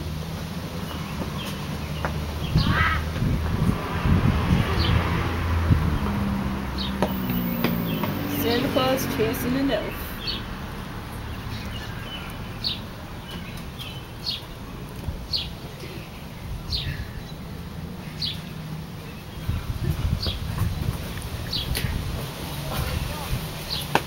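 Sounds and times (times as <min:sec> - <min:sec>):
bird calling: 0:06.8 - 0:10.5.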